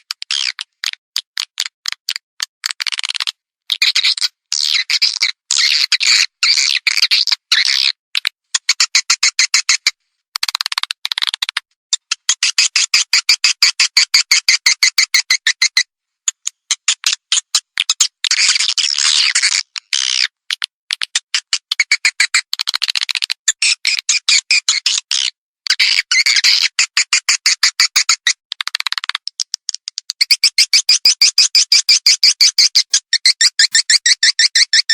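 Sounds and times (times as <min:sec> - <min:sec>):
swiftlets chirping and clicking: 0:08.2 - 0:34.9.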